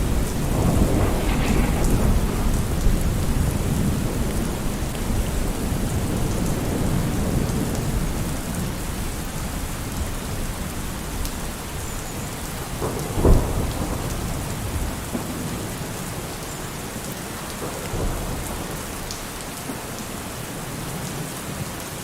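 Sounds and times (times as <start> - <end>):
rolling thunder: 0.0 - 9.0
steady rain: 0.0 - 22.0.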